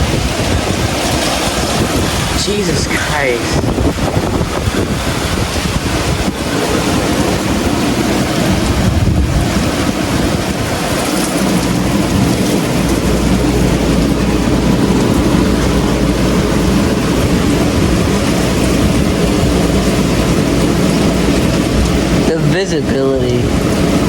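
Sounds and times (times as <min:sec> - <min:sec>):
heavy rain: 0:00.0 - 0:24.0
low thunder rumble: 0:00.0 - 0:24.0
strong wind: 0:00.0 - 0:24.0.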